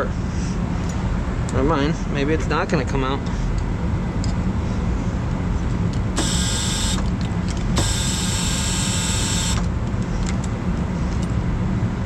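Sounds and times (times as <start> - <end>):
low mechanical rumble: 0.0 - 12.0
high buzzing whine: 6.1 - 10.0.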